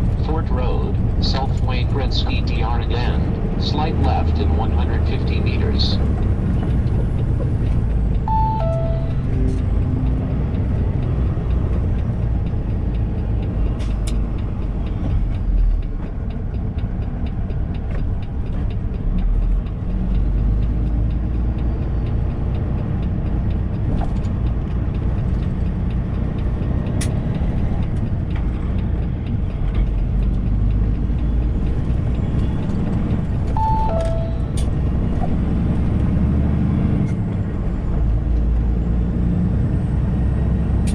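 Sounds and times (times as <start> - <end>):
truck engine and road rumble: 0.0 - 40.9
two-note falling chime: 8.3 - 9.4, 33.6 - 34.5.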